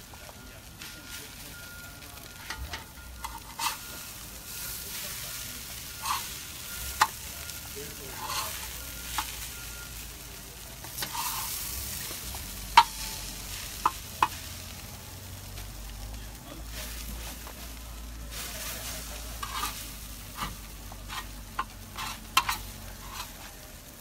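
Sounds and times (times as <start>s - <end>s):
food sizzling on a cooker: 0.0s - 24.0s
spatula scraping and clacking: 2.4s - 4.0s, 5.9s - 7.2s, 8.0s - 9.5s, 10.8s - 13.2s, 19.1s - 23.5s.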